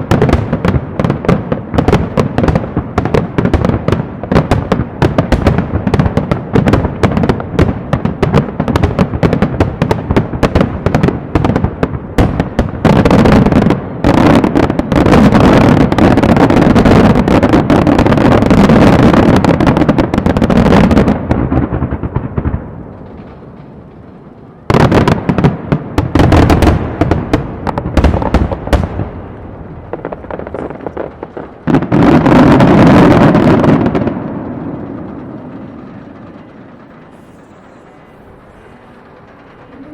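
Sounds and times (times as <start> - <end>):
fireworks crackling: 0.0 - 39.9.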